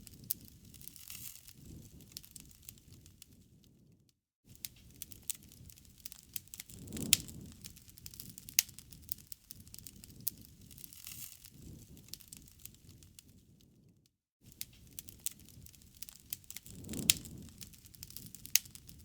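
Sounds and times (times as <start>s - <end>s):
wood fire crackling and popping: 0.0s - 3.9s, 4.5s - 13.9s, 14.5s - 19.0s.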